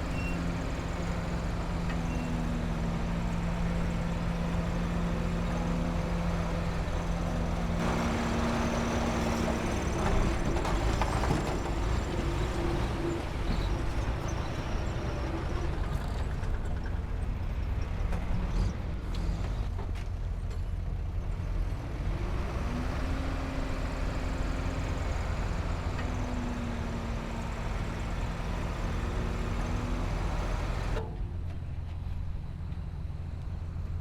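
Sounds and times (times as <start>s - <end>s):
diesel machinery rumbling: 0.0s - 34.0s.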